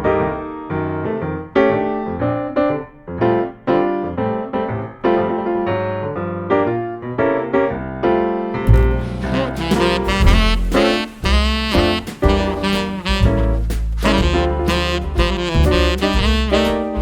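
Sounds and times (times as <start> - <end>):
piano chords: 0.0 - 17.0
band with heavy bass: 8.7 - 17.0.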